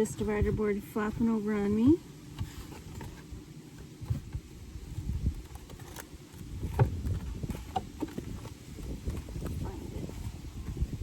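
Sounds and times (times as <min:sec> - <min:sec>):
wooden knocks and clunks: 0:05.2 - 0:09.6.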